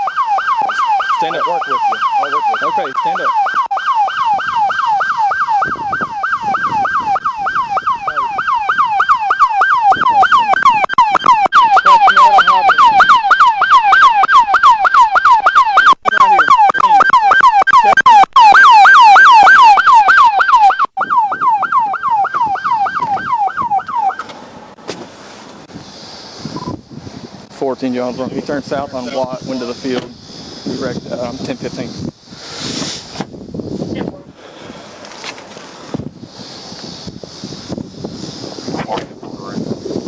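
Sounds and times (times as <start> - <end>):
police siren yelping: 0.0 - 24.3.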